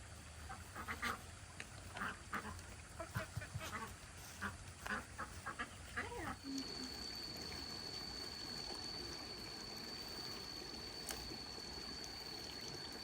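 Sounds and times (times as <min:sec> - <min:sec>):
ducks quacking: 0:00.4 - 0:01.3, 0:01.9 - 0:06.4.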